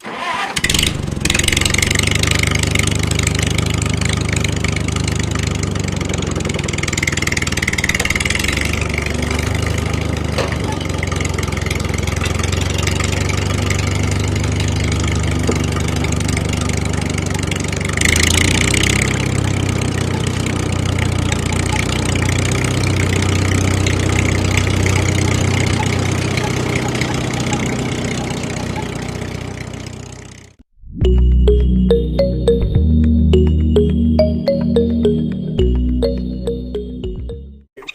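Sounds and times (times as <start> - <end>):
small engine humming: 0.4 - 30.5.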